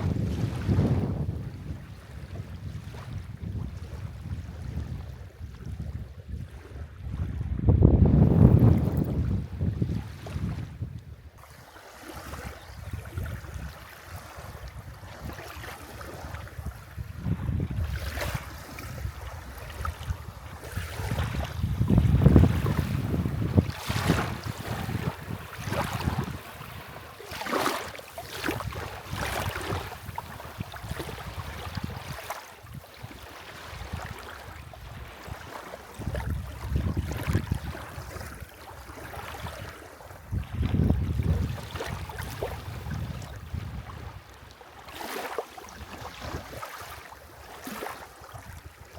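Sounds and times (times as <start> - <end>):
wind rumbling on microphone: 0.0 - 44.5, 45.7 - 48.9
waves washing onto shore: 11.4 - 48.9.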